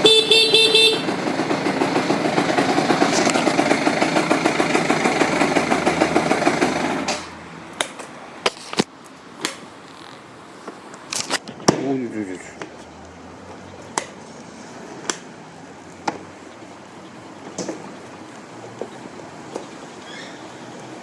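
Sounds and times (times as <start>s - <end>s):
horn toot: 0.0s - 1.1s
scooter engine running: 0.0s - 7.4s.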